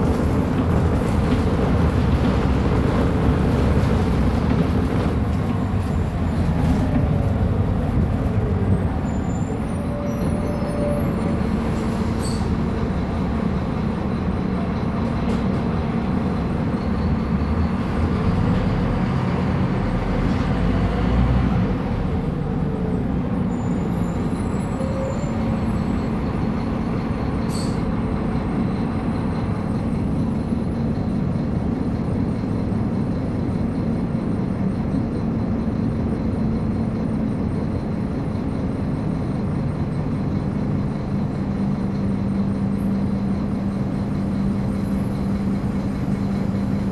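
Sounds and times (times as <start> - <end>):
bus engine running: 0.0 - 46.9.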